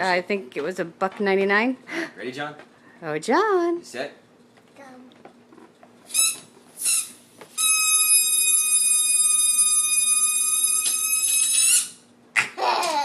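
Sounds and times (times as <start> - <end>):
balloon toy whistling: 6.1 - 12.1.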